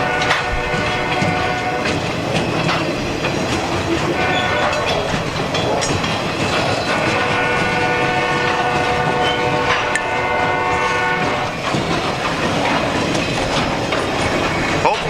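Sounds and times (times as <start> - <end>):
locomotive air horn: 0.0 - 2.2, 3.8 - 5.2, 6.6 - 11.9
train wheels clacking on rails: 0.0 - 15.0.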